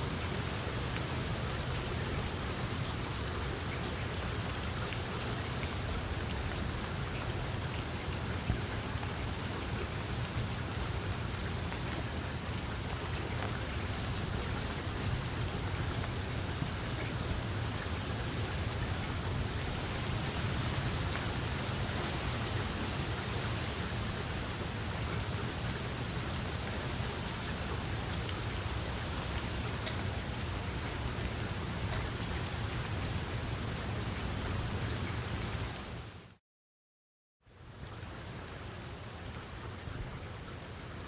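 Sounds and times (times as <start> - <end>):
steady rain hiss: 0.0 - 36.4, 37.5 - 41.0
faint rain drop ticks: 11.6 - 14.8, 28.2 - 32.2.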